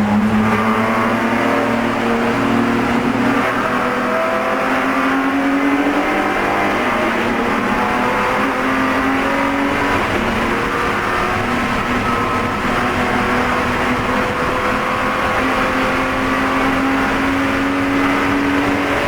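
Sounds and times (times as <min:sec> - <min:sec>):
race car engine running hard: 0:00.0 - 0:19.0.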